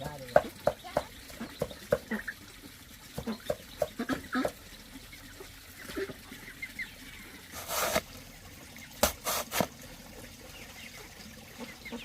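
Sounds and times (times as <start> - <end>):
rustling: 7.6 - 8.1.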